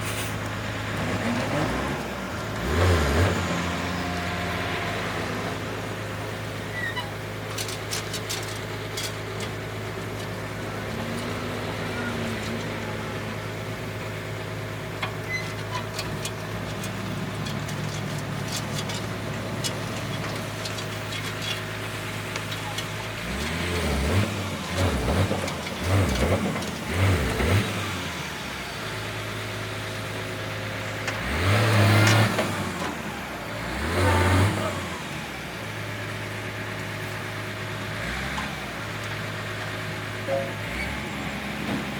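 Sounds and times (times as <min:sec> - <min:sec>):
diesel engine idling and revving: 0:00.0 - 0:41.9.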